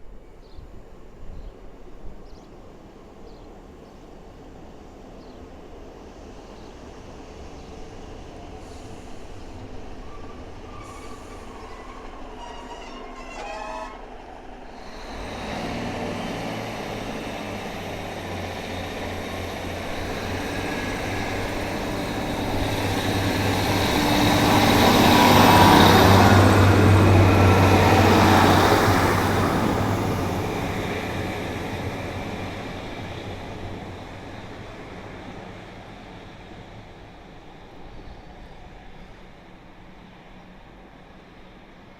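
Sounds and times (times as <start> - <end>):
rail noise: 0.0 - 41.9
diesel train engine drone: 1.2 - 41.9.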